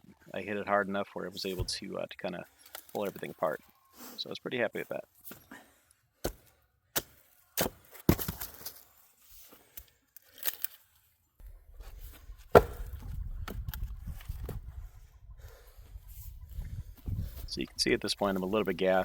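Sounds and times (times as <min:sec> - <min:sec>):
axe chopping wood: 0:06.2 - 0:08.8, 0:12.4 - 0:13.6.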